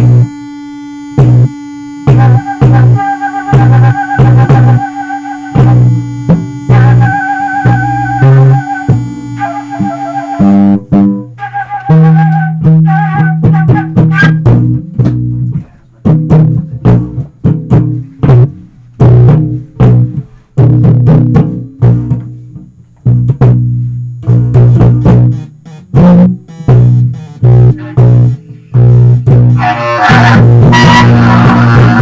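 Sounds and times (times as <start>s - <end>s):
electric bass plucked notes: 0.0s - 32.0s
guitar: 0.0s - 32.0s.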